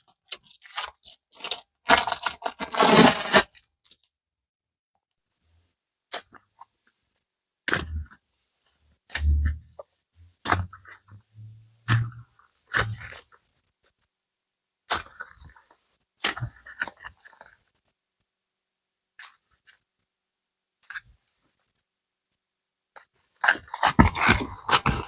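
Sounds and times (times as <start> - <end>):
dull thumps: 9.2 - 12.2, 12.8 - 13.1.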